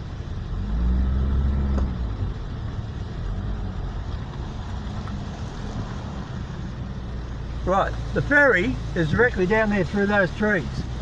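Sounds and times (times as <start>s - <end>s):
vehicle engine pulling uphill: 0.0s - 11.0s.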